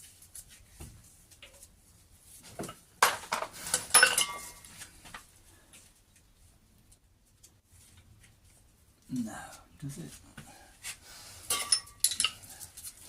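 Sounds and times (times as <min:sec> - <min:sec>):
spanner clinking on metal: 0:11.5 - 0:12.4.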